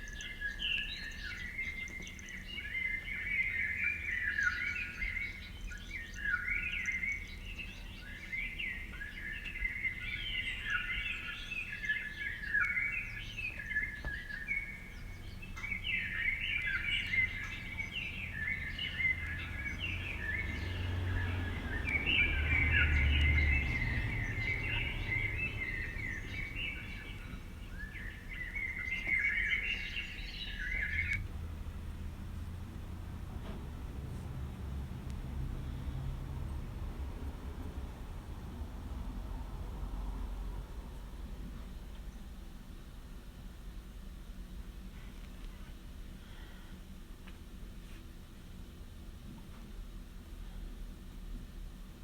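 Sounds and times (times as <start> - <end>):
small birds chirping: 0.0 - 39.2.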